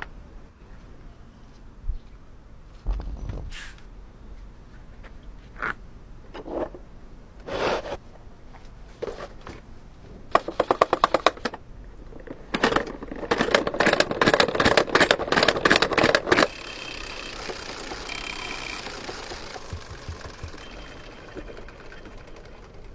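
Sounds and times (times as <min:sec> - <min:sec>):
mechanical clicking: 0:12.5 - 0:22.9
steady mechanical whir: 0:16.2 - 0:22.9.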